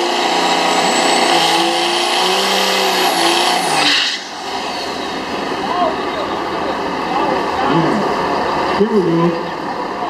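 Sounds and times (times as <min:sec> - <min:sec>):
high whine: 0:00.0 - 0:08.0
diesel truck engine under load: 0:00.0 - 0:10.0.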